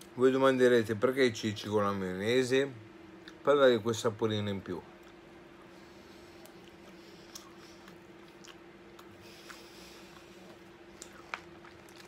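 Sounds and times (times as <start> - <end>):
faint steady hum: 0.0 - 12.0
wet chewing clicks: 6.4 - 12.0.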